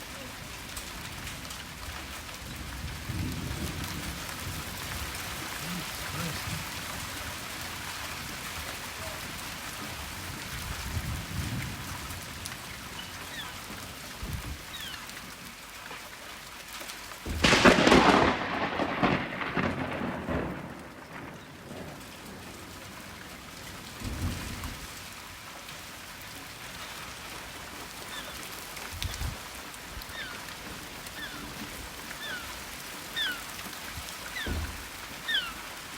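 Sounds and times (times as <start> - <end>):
heavy rain: 0.0 - 35.9
thunder rumbling: 2.4 - 9.4, 17.3 - 23.1
sharp thunderclap: 17.3 - 22.0.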